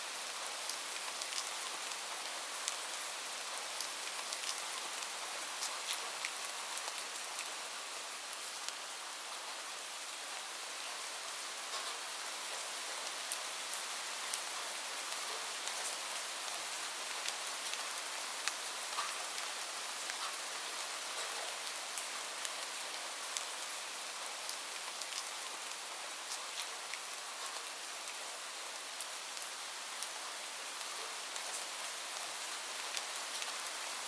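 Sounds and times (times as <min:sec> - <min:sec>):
raindrops ticking on surface: 0:00.6 - 0:07.6, 0:13.1 - 0:30.2.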